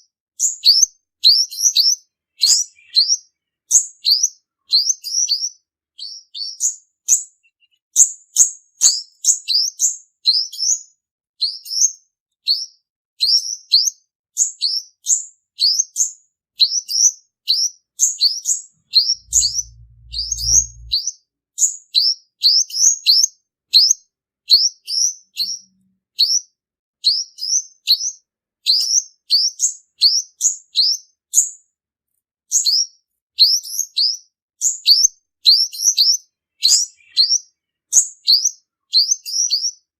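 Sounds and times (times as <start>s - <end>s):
sunbird singing high chirps: 0.4s - 10.8s, 16.6s - 21.0s, 33.4s - 39.8s
brief low hum: 18.9s - 21.0s.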